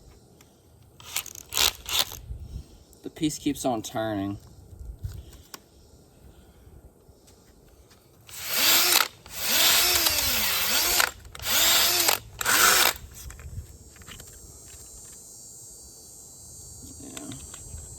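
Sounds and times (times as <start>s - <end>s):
power drill sanding metal rim: 8.3s - 13.0s.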